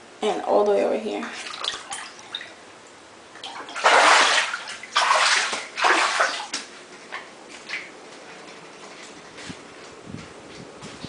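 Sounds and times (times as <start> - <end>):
wading through floodwater: 3.6 - 6.5.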